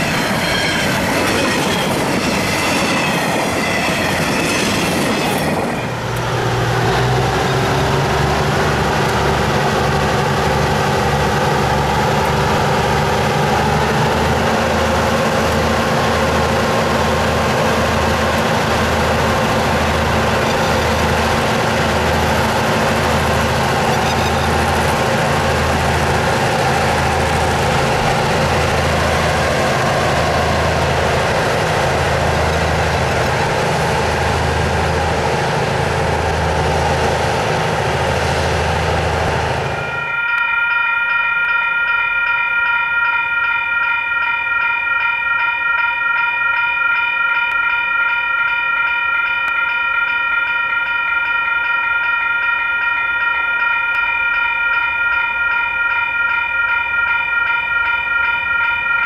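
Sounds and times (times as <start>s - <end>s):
diesel locomotive engine droning: 0.0s - 59.0s.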